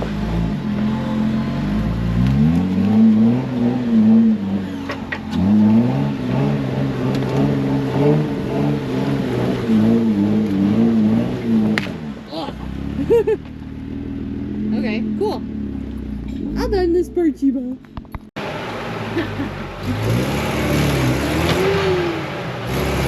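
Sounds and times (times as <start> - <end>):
engine revving hard: 0.0 - 13.3, 18.4 - 23.0.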